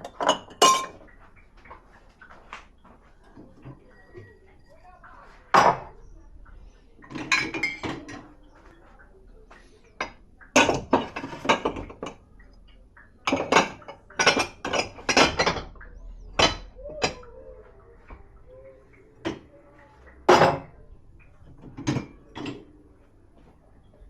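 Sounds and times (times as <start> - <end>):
dishes and cutlery clattering: 0.0 - 4.3, 5.2 - 6.1, 7.0 - 8.7, 9.8 - 12.2, 13.0 - 17.4, 20.2 - 23.2.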